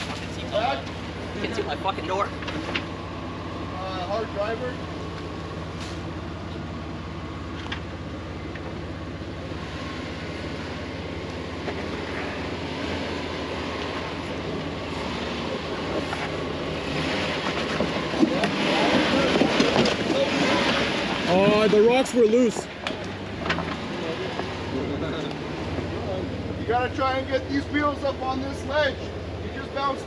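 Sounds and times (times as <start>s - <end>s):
engine running at low revs: 0.0s - 30.0s.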